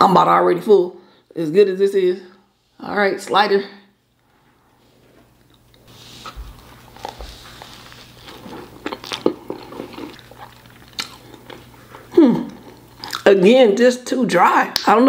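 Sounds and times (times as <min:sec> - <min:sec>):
wet chewing noises: 0:05.4 - 0:13.3.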